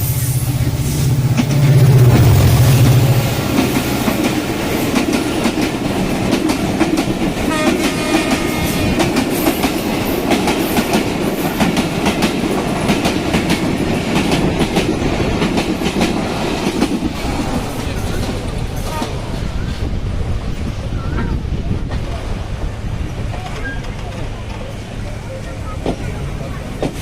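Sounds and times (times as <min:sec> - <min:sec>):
train wheels clattering on rails: 0:00.0 - 0:27.0.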